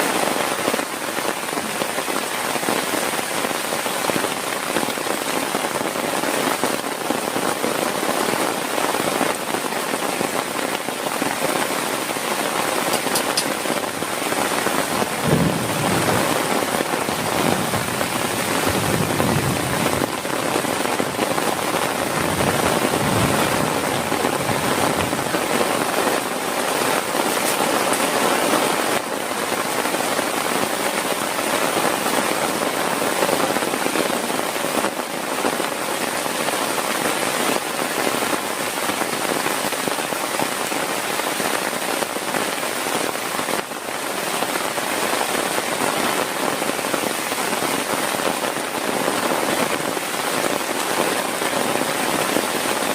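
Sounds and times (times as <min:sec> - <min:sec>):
heavy rain: 0:00.0 - 0:52.9
thunder clap and rumble: 0:14.9 - 0:26.3.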